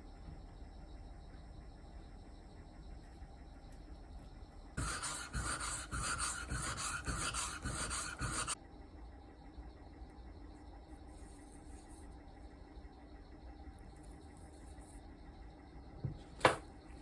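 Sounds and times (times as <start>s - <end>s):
scrubbing on metal axe head: 4.8s - 8.6s.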